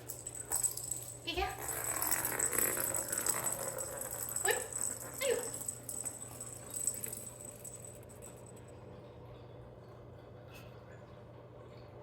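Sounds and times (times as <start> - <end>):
toy ball rattling: 0.0 - 8.6.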